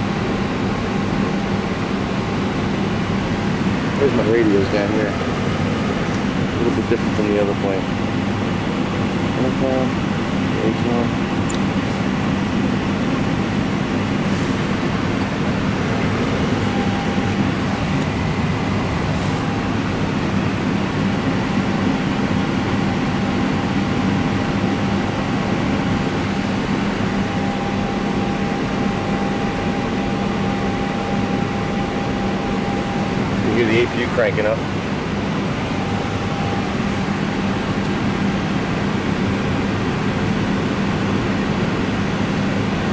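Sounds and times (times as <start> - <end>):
auxiliary power unit drone: 0.0 - 42.9.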